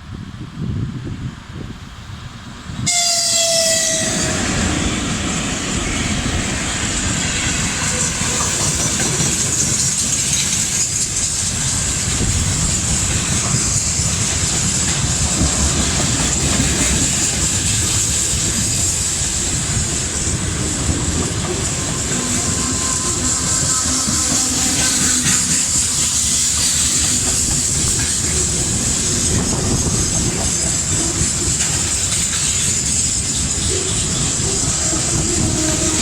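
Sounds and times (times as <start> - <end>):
freight train rumble and wheel clatter: 0.0 - 36.0
electric locomotive horn blast: 2.8 - 5.2, 22.0 - 25.6.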